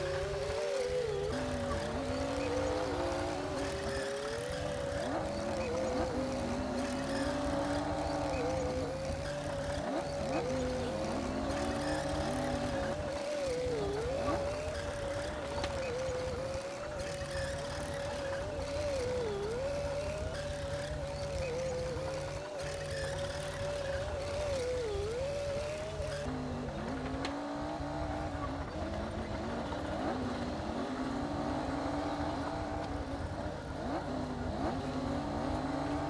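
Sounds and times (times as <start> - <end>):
bulldozer diesel engine running: 0.0 - 27.2.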